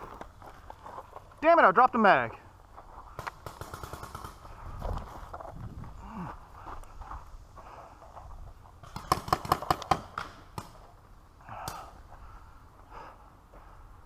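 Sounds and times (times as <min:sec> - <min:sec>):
paintball marker shots: 0:08.8 - 0:10.8.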